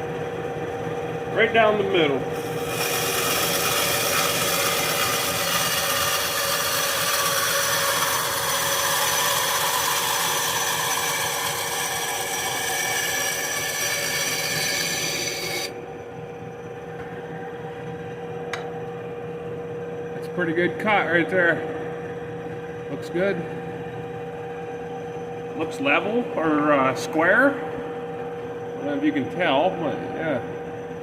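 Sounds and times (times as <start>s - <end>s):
bandsaw motor hum: 1.0s - 17.3s
bandsaw blade rasping in wood: 2.4s - 15.7s.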